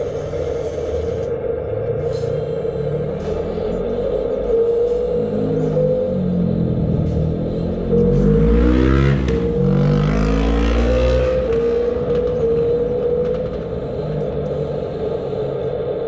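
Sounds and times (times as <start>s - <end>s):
hydraulic pump whining: 0.0s - 16.0s.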